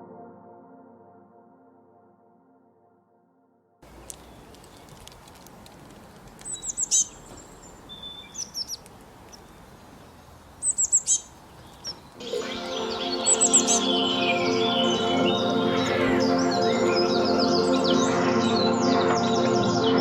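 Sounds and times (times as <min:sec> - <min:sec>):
faint outdoor hiss: 0:03.8 - 0:18.1
songbirds singing: 0:03.8 - 0:20.0
quick high bird chirps: 0:06.4 - 0:18.0
soft music: 0:12.2 - 0:20.0.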